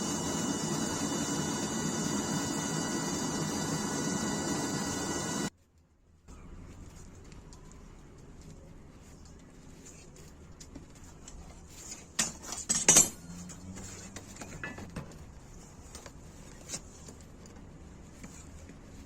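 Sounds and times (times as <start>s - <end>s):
metal objects clinking together: 12.2s - 13.5s.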